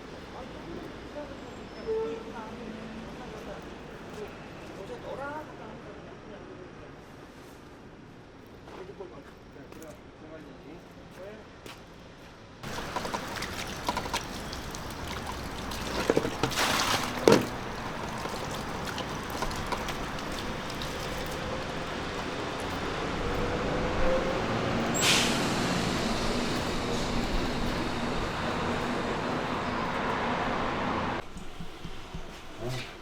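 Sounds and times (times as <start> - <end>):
heavy truck running: 12.6 - 32.8
short hiss of air: 25.0 - 26.1.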